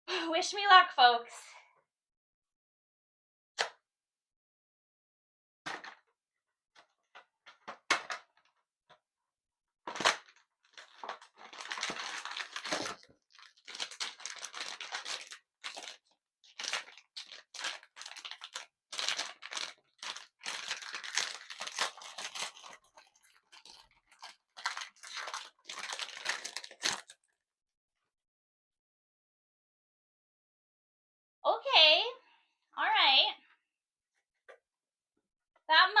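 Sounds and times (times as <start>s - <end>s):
packaging torn and crinkled: 9.9s - 27.3s.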